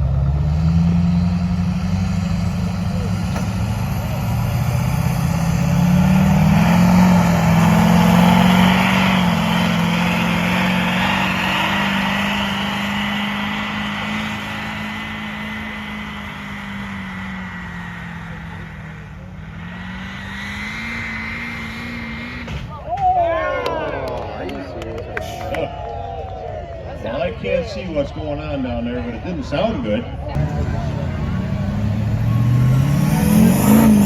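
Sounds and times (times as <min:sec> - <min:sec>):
diesel truck engine revving: 0:00.0 - 0:22.7, 0:30.3 - 0:34.0.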